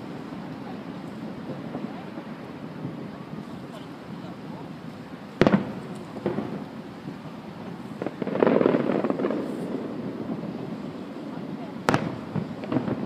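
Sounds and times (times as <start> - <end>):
firework shells bursting: 4.8 - 13.0
rapid firework pops: 5.4 - 6.7, 7.7 - 10.5, 11.8 - 13.0.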